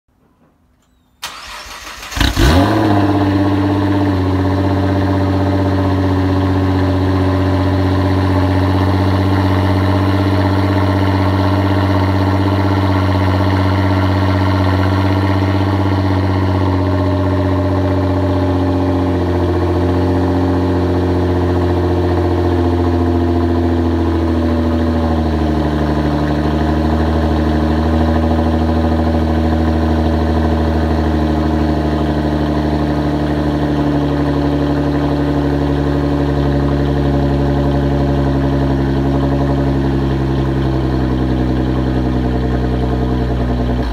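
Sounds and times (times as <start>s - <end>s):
car engine cranking and starting: 0.8s - 7.2s
car engine idling: 1.2s - 43.9s.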